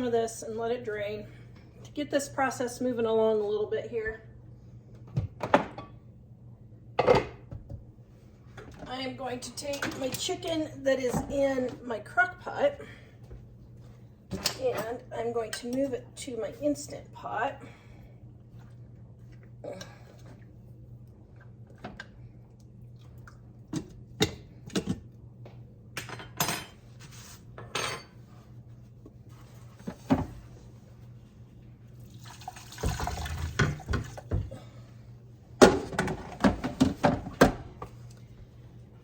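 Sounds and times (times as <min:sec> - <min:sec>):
low steady hum: 0:00.0 - 0:39.0
liquid splashing: 0:32.0 - 0:34.3.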